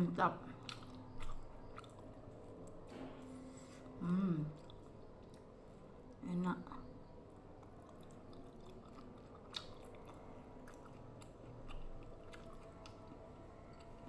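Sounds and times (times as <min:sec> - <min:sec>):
person chewing food: 0:00.6 - 0:02.9, 0:04.6 - 0:05.8, 0:07.4 - 0:14.0.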